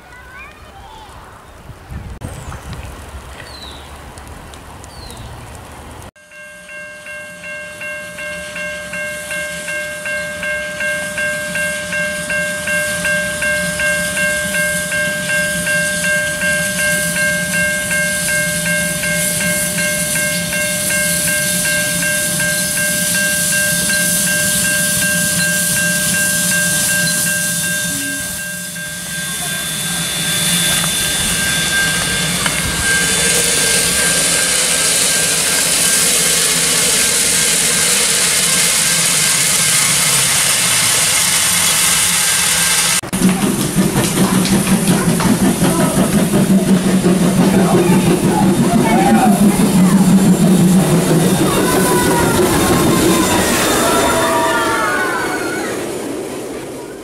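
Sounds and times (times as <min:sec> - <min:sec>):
steam locomotive hissing: 0:07.8 - 0:57.0.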